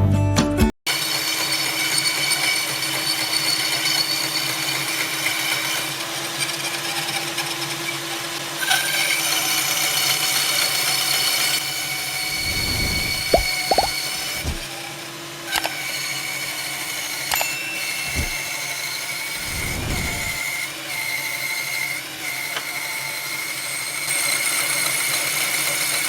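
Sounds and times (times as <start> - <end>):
clicks: 12.4 - 14.7, 17.3 - 18.4.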